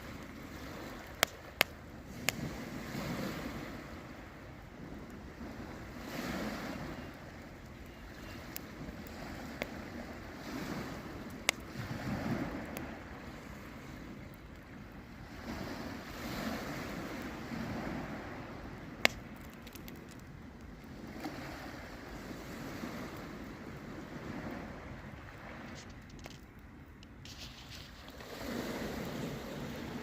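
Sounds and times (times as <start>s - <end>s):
campfire crackling: 0.0s - 30.0s
sharp pops of fire: 0.8s - 3.6s, 8.2s - 12.9s, 18.9s - 20.3s.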